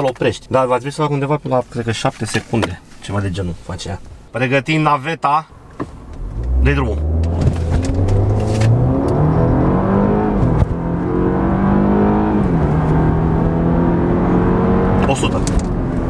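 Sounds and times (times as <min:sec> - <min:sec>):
car engine accelerating: 0:06.0 - 0:16.0.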